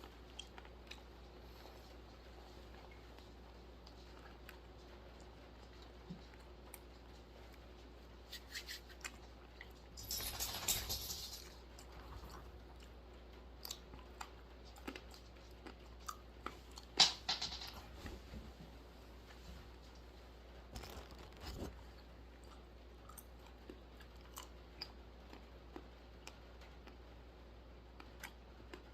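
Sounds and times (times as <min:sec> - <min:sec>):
almonds being chewed and crunched: 0:00.0 - 0:08.0, 0:11.7 - 0:17.0, 0:20.7 - 0:27.3, 0:27.9 - 0:28.9.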